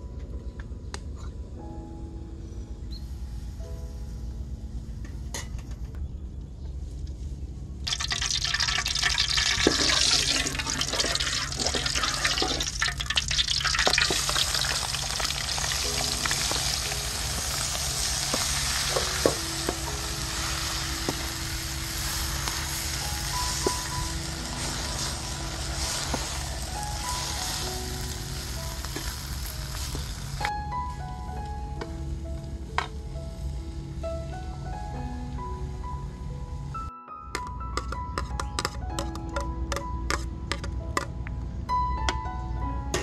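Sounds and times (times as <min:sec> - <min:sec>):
background music: 0:00.0 - 0:05.5, 0:07.9 - 0:43.0
food sizzling in hot oil: 0:07.9 - 0:30.5.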